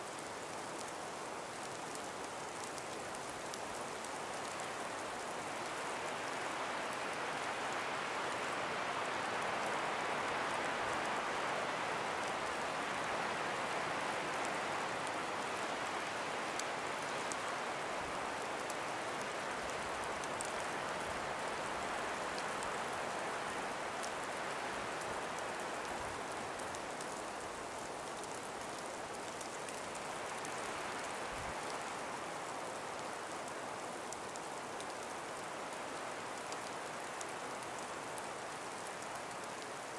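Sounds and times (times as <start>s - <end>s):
breeze through trees: 0.0s - 39.9s
faint ticks: 25.0s - 35.5s.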